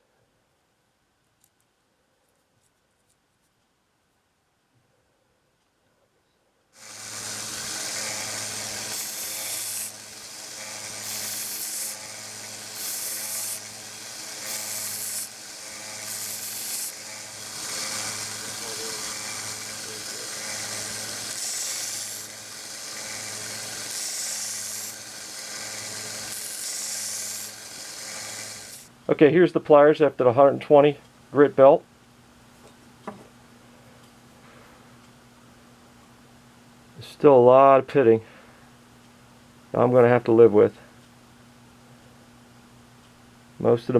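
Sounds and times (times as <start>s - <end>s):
belt grinding steel: 6.8s - 28.9s
belt sander motor hum: 6.8s - 28.9s.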